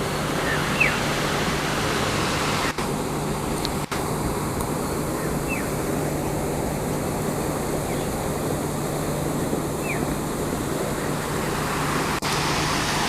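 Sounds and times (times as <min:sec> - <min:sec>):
steady rushing noise: 0:00.0 - 0:13.0
descending bird chirps: 0:00.4 - 0:01.0, 0:09.8 - 0:10.1.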